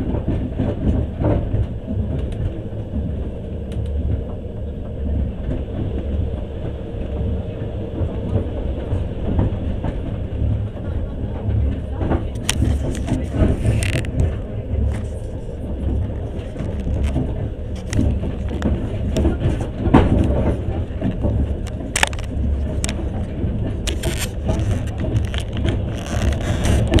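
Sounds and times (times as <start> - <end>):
train wheels rumbling on track: 0.0 - 27.0
sharp clicks and knocks: 12.0 - 27.0.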